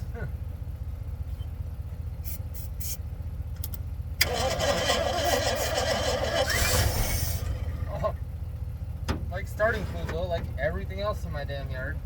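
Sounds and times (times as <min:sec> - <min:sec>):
starter cranking engine: 0:04.2 - 0:08.0
steady low rumble: 0:06.6 - 0:12.0.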